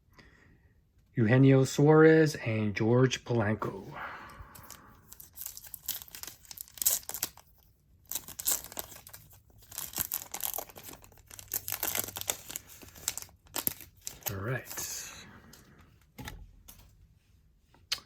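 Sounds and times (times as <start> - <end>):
plastic wrapping crinkling: 4.5 - 15.1.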